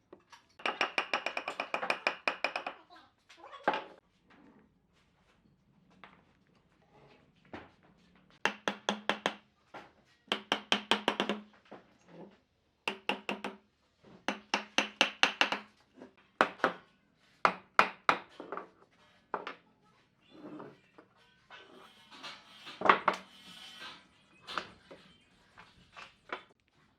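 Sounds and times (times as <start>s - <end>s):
hammer tapping on wood: 0.6s - 2.8s, 8.4s - 9.4s, 10.3s - 11.5s, 12.9s - 13.6s, 14.3s - 15.7s.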